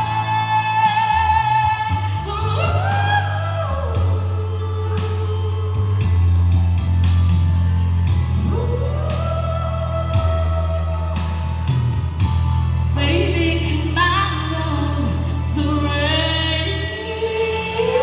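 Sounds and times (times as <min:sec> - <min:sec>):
woman singing: 0:00.0 - 0:06.2, 0:08.4 - 0:11.5, 0:13.0 - 0:18.0
instrumental backing track with bass: 0:00.0 - 0:18.0.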